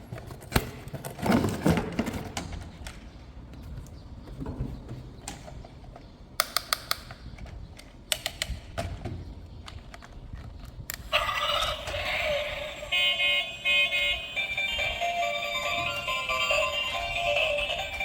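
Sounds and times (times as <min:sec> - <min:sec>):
plastic clicks: 0:05.3 - 0:11.1
toy electronic horn sounds: 0:11.1 - 0:18.0.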